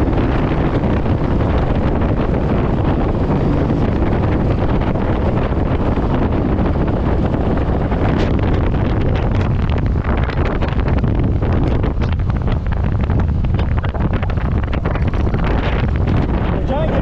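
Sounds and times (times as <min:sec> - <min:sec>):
wind rushing on microphone: 0:00.0 - 0:17.0.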